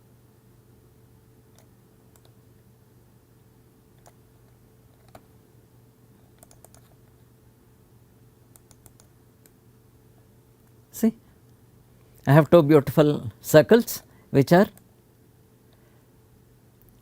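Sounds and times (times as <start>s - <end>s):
low steady hum: 0.0s - 17.0s
mouse and keyboard clicks: 4.0s - 4.2s, 5.0s - 5.3s, 6.4s - 7.0s, 8.5s - 9.6s.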